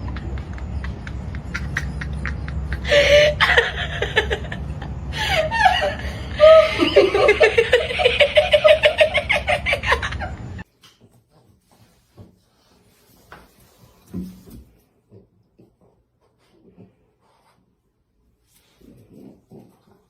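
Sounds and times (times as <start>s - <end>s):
person laughing: 0.0s - 10.6s.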